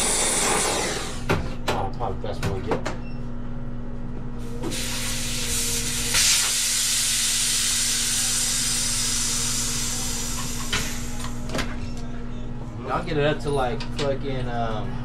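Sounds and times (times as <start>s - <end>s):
low machine hum: 0.0s - 15.0s
pressurised gas hissing: 4.6s - 11.4s.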